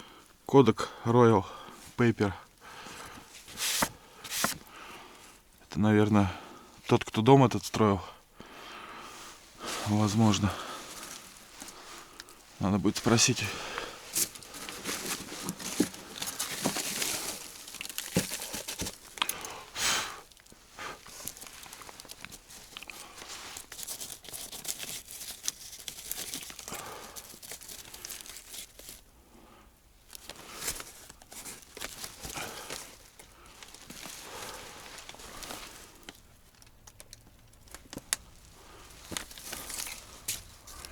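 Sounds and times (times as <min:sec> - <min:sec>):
paper rustling and crinkling: 0:02.9 - 0:04.7, 0:09.6 - 0:29.1, 0:30.1 - 0:40.9.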